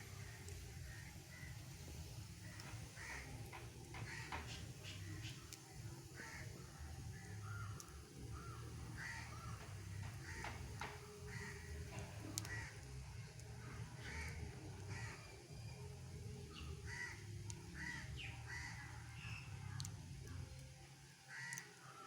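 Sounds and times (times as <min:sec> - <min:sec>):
birds calling: 0:00.1 - 0:12.9, 0:16.4 - 0:19.5.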